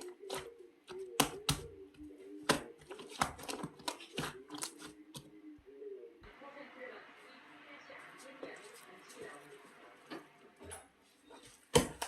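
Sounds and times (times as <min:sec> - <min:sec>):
sharp clicks and taps: 0:00.0 - 0:05.3.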